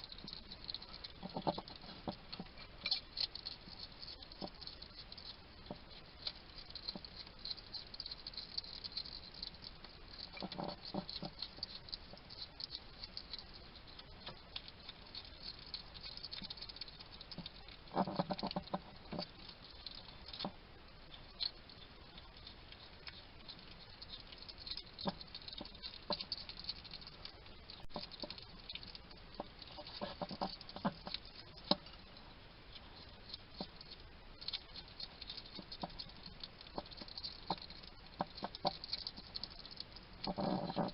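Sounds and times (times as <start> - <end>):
hedgehog crunching food: 0.0 - 40.9
hedgehog chattering: 40.2 - 40.9.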